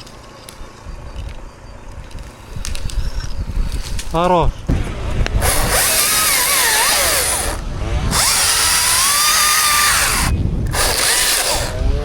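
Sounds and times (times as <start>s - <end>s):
chainsaw running hard: 5.4s - 11.9s.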